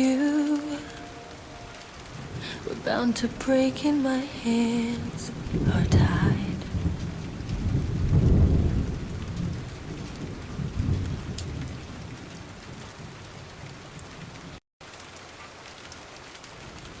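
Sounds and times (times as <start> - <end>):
steady rain: 0.0 - 17.0
rolling thunder: 4.3 - 12.8.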